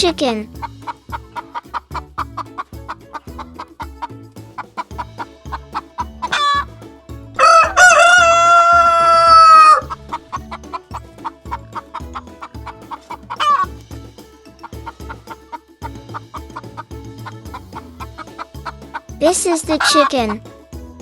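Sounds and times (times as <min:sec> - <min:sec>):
chickens clucking: 0:00.6 - 0:20.6
chicken squawk: 0:04.8 - 0:06.7, 0:07.4 - 0:13.7, 0:19.8 - 0:20.2
rooster crowing: 0:07.4 - 0:10.0.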